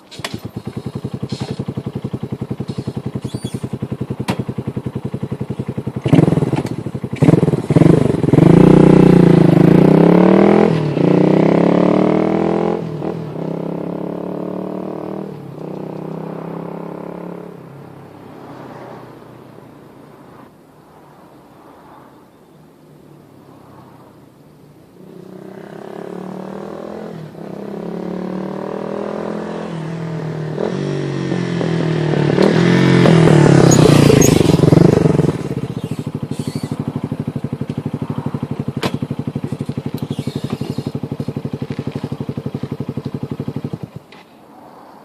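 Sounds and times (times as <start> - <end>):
engine running and idling: 0.0 - 9.9, 31.7 - 44.1.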